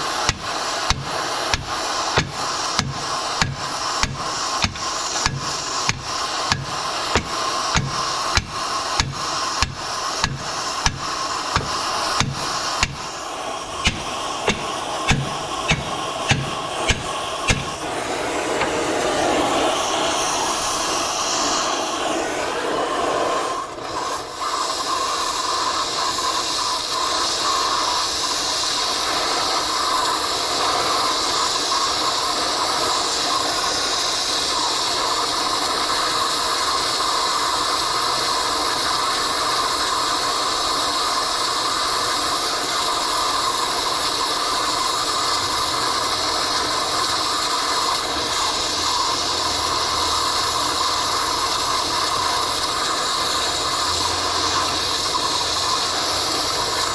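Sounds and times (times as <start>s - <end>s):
sharp metal knocks: 0.0s - 13.2s, 13.8s - 19.0s
cutting torch hissing: 0.0s - 56.9s.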